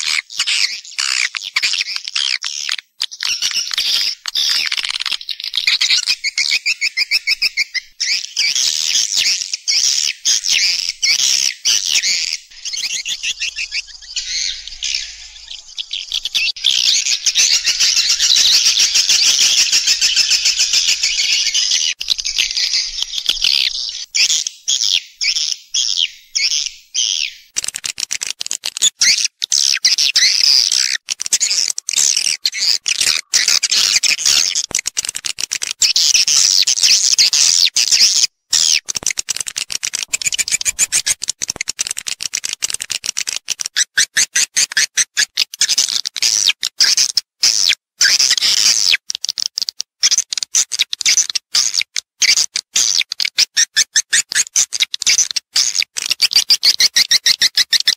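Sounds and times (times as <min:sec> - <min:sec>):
swiftlet twittering: 0:40.1 - 0:41.2.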